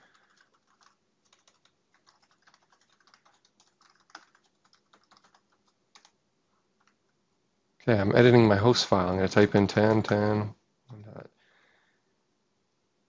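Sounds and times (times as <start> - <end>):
computer keyboard typing: 0.0 - 6.2.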